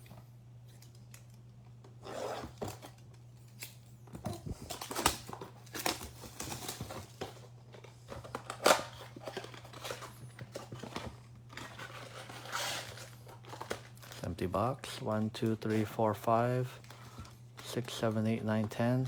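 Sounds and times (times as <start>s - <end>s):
low electrical hum: 0.0s - 19.0s
plastic wrapping tearing and crinkling: 4.5s - 7.2s.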